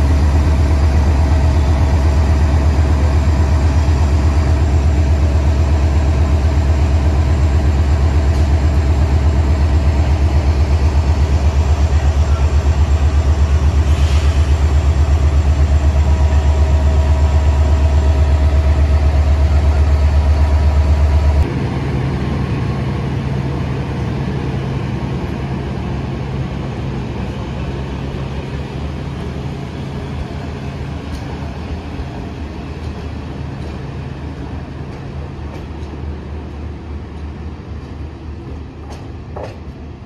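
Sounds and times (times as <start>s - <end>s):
diesel train engine idling: 0.0s - 40.0s
low rumble of a train: 0.0s - 40.0s.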